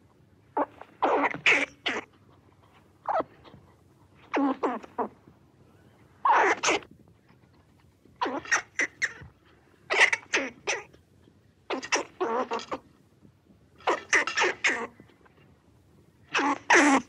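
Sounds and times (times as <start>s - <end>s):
squirrel rasping squeaky calls: 0.6s - 2.2s, 3.0s - 3.6s, 4.2s - 5.1s, 6.2s - 6.9s, 8.2s - 9.3s, 9.9s - 11.0s, 11.7s - 12.9s, 13.8s - 15.0s, 16.3s - 17.0s.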